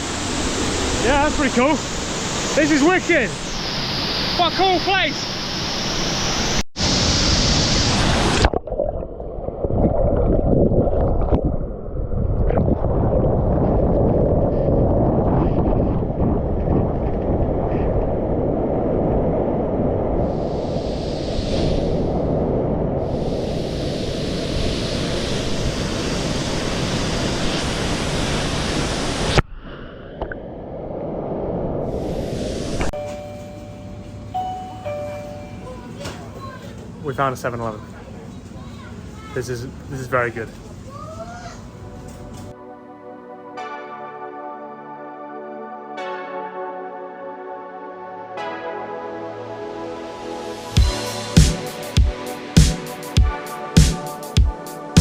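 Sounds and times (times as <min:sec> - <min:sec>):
waterfall roaring: 0:00.0 - 0:08.5
thin rushing noise: 0:00.0 - 0:09.0, 0:19.2 - 0:36.0
low rumbling noise: 0:05.2 - 0:35.8
wind buffeting microphone: 0:09.4 - 0:29.4.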